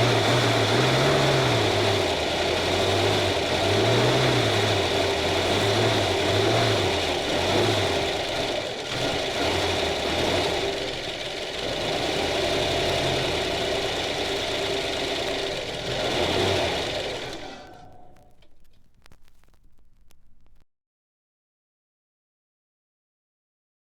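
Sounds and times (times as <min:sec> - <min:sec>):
engine running: 0:00.0 - 0:19.1.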